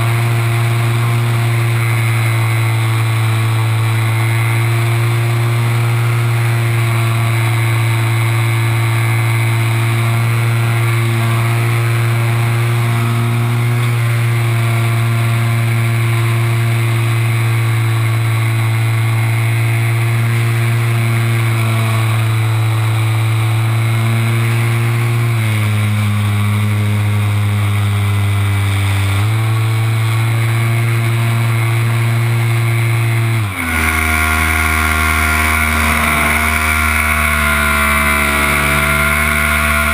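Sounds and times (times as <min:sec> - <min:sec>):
model plane motor and propeller: 0:00.0 - 0:39.9.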